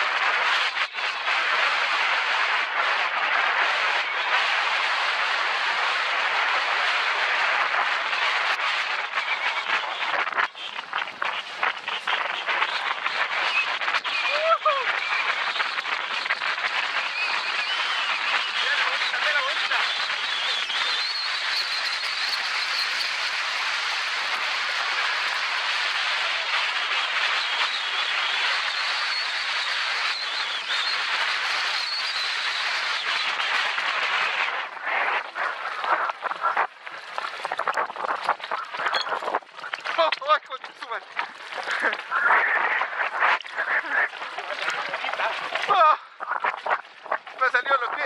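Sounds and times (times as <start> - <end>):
bike tyres rolling on dirt trail: 19.8 - 40.0
small rattles and ticks: 21.1 - 26.8.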